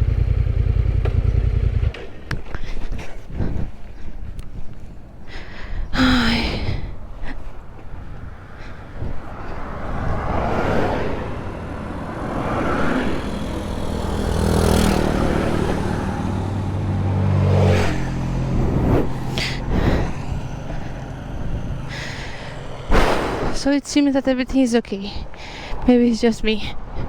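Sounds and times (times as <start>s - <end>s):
motorcycle engine running: 0.0s - 2.6s, 11.4s - 23.0s
wind noise on microphone: 2.4s - 5.0s, 5.8s - 13.8s, 18.0s - 20.8s.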